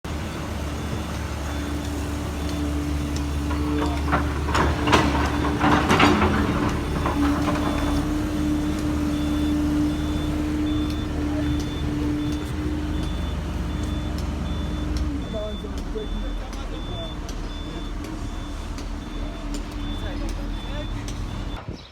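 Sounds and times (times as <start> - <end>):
heavy diesel machine running: 0.0 - 21.6
reversing alarm beeping: 0.2 - 21.7
clattering metal knocks: 2.4 - 15.9.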